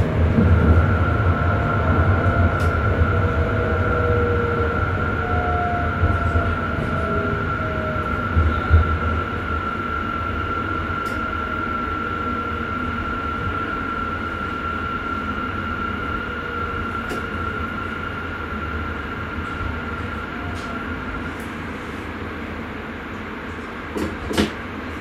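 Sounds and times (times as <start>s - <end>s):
train rumble on rails: 0.0s - 25.0s.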